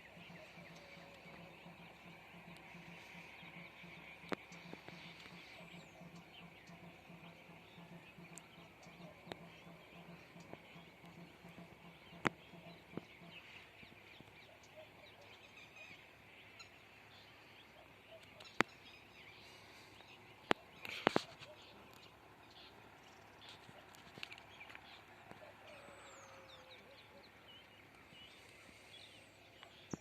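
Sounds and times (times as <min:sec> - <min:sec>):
low pulsing croak: 0:00.0 - 0:15.0.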